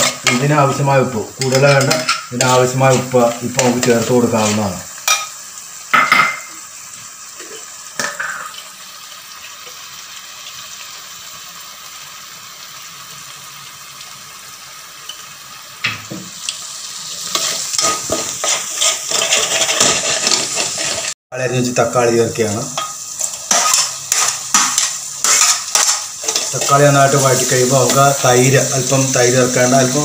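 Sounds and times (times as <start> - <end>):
gravy sizzling in a metal pot: 0.0 - 30.0
metal spoon scraping a pot: 17.3 - 21.1, 22.8 - 26.9.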